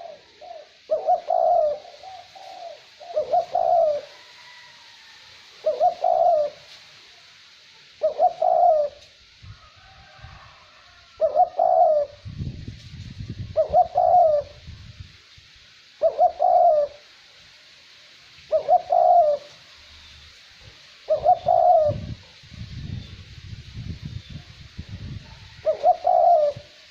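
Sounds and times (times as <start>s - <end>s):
dove cooing: 0.0s - 4.7s, 5.6s - 6.7s, 8.0s - 9.1s, 11.2s - 12.2s, 13.5s - 14.6s, 16.0s - 17.1s, 18.5s - 19.6s, 21.0s - 22.3s, 25.2s - 26.9s
wind rumble: 12.1s - 15.2s, 21.2s - 26.7s.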